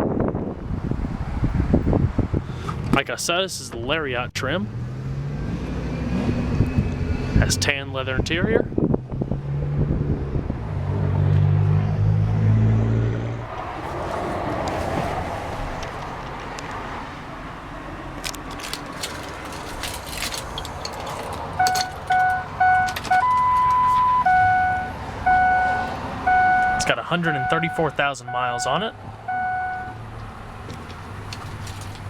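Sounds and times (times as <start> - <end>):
dashboard warning chime beeping: 21.6 - 30.0
long high steady tone: 21.6 - 30.0.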